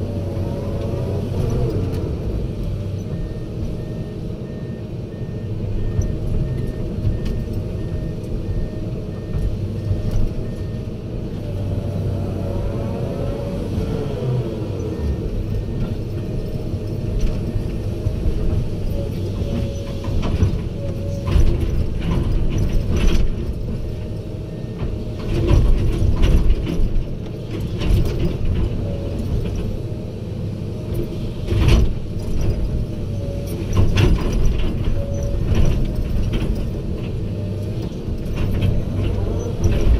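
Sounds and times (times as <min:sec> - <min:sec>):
diesel engine rumble: 0:00.0 - 0:39.9
metallic clanks and knocks: 0:33.5 - 0:39.9.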